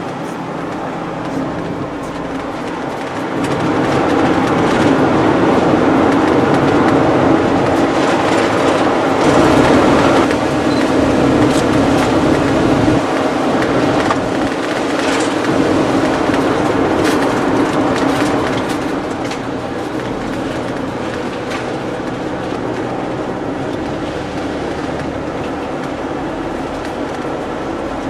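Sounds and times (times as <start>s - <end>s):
road and engine rumble: 0.0s - 3.2s.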